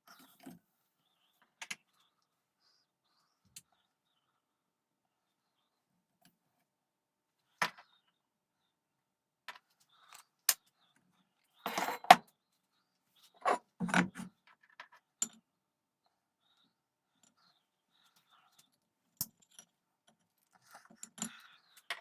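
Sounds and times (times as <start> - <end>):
metal tools clinking on workbench: 11.7 - 12.2.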